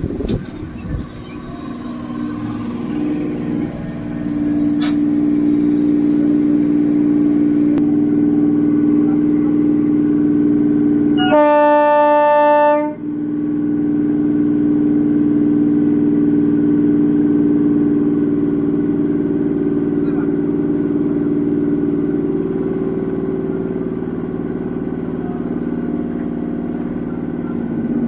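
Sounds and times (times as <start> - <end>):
train low hum: 0.0 - 28.0
train horn: 11.2 - 13.1.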